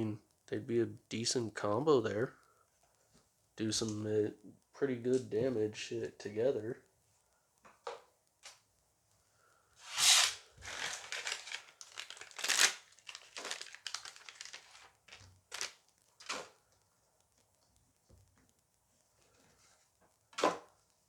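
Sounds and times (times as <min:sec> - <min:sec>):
wrapper tearing and crinkling: 0:09.8 - 0:16.5.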